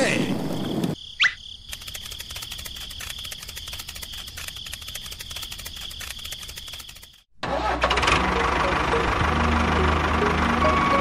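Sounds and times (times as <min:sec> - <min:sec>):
crickets chirring: 0:00.2 - 0:07.3.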